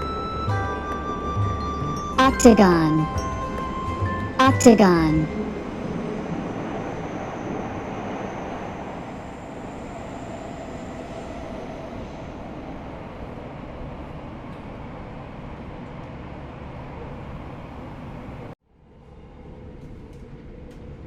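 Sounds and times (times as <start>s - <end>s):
train rumbling on tracks: 5.3s - 18.6s.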